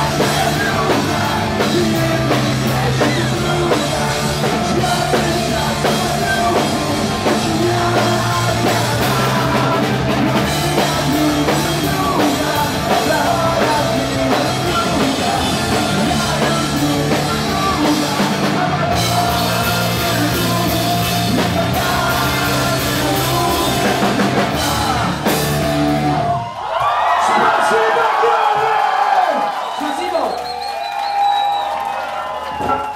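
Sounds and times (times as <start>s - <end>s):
person singing: 0.0s - 25.4s
drum kit: 0.0s - 26.4s
bass guitar: 0.0s - 26.5s
electric guitars: 0.0s - 26.5s.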